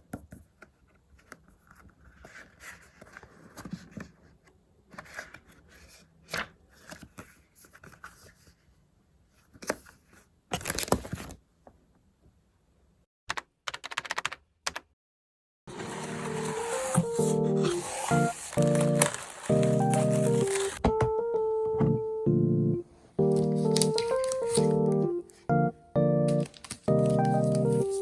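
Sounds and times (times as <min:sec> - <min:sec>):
paper and sticker handling: 0:15.7 - 0:20.9, 0:23.4 - 0:25.5, 0:26.3 - 0:28.0.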